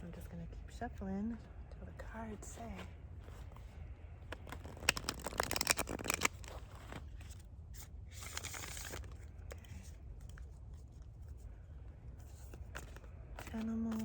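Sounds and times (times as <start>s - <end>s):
cards shuffling: 2.7s - 11.4s, 12.2s - 14.0s.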